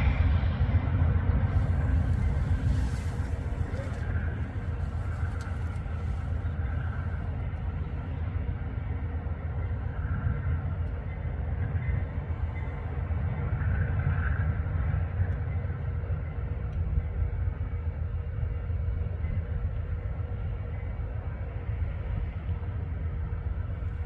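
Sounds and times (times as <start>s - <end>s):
train passing rumble: 0.0s - 24.0s.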